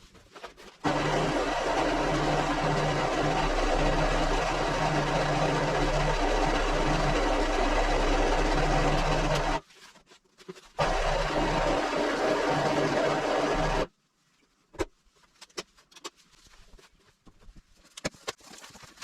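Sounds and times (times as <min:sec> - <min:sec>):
machine motor and rollers whirring: 0:00.8 - 0:09.6, 0:10.8 - 0:13.9.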